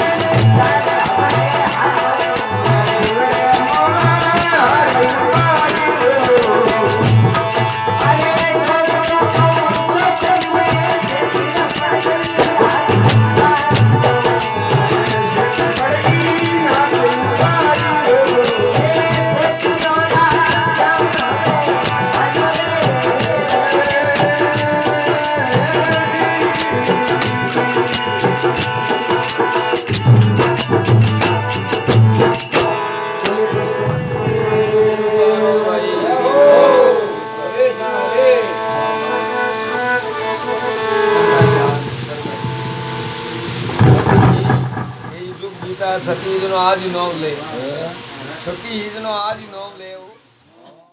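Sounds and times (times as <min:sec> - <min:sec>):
jingling small percussion: 0:00.0 - 0:34.4, 0:36.4 - 0:50.0
hand drum: 0:00.0 - 0:34.8, 0:40.9 - 0:46.4
instrumental devotional melody: 0:00.0 - 0:50.5.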